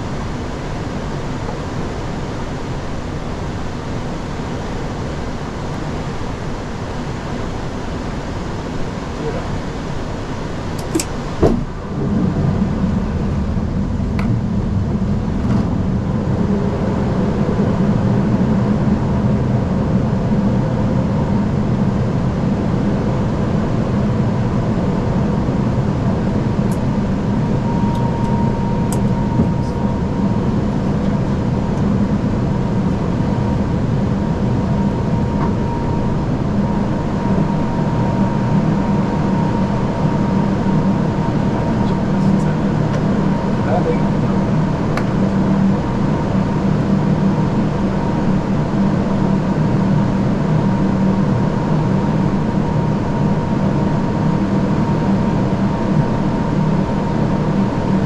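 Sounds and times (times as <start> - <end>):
airflow and engine hum: 0.0 - 58.0
sharp click: 10.8 - 11.6
faint thin whine: 26.4 - 44.6.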